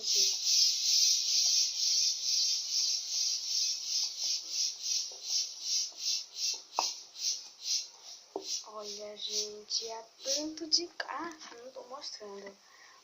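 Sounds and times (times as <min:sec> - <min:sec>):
insect pulsing buzz: 0:00.0 - 0:10.6.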